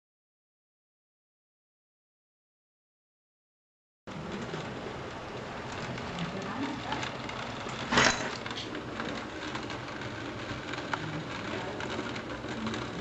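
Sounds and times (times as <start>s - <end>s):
rain hissing: 4.1s - 13.0s
raindrops striking: 4.1s - 13.0s.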